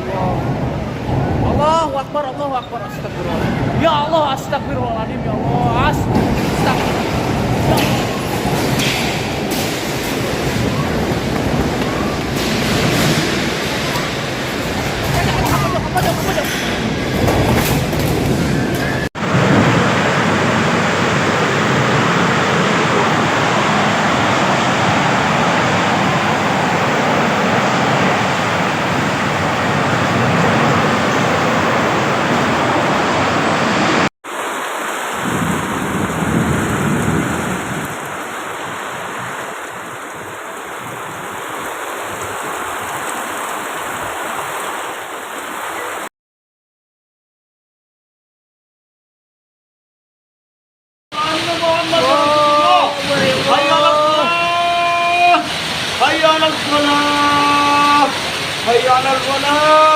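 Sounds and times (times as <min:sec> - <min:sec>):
strong wind: 0:00.0 - 0:02.2, 0:02.8 - 0:46.0
heavy rain: 0:06.0 - 0:46.1, 0:51.2 - 0:59.9.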